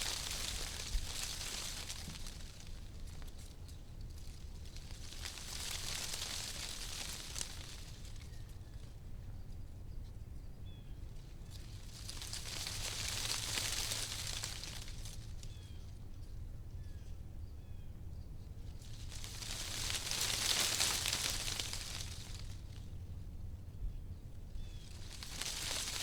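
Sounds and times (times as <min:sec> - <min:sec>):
wind rustling tree leaves: 0:00.0 - 0:09.7, 0:10.8 - 0:16.8, 0:18.4 - 0:26.0
low wind rumble: 0:00.0 - 0:26.0
faint bird chirps: 0:08.3 - 0:11.6, 0:15.4 - 0:18.5.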